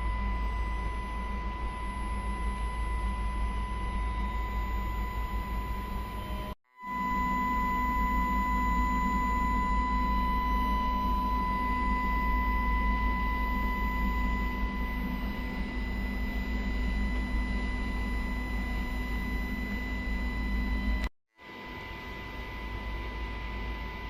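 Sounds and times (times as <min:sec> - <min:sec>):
fainter higher tone: 0:00.0 - 0:18.3
steady high-pitched tone: 0:00.0 - 0:21.1.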